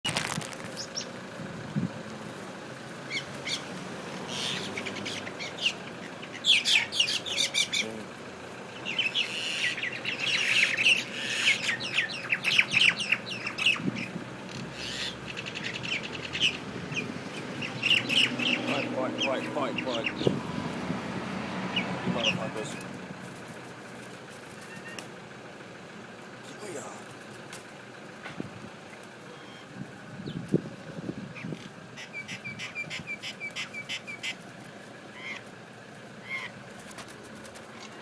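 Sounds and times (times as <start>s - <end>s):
mynas calling while fighting: 8.8s - 16.6s.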